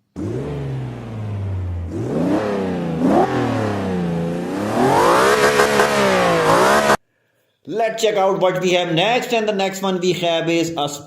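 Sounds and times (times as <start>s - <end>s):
car engine revving: 0.0s - 7.0s.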